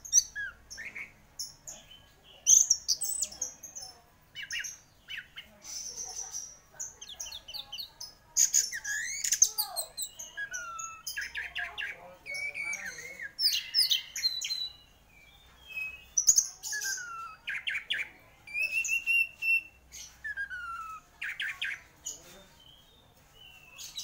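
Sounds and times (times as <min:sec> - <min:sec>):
thrush singing whistled phrases: 0:08.7 - 0:11.5, 0:12.3 - 0:14.9, 0:15.6 - 0:21.8.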